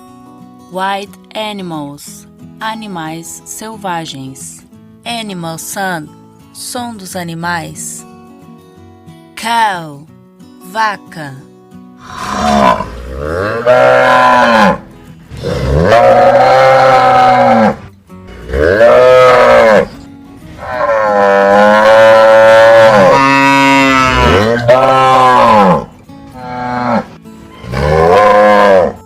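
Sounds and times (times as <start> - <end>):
cows mooing: 12.0 - 29.0.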